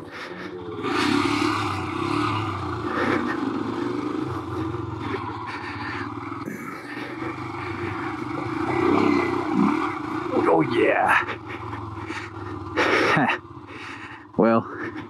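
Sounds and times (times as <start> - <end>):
motorcycle engine: 0.0 - 15.0.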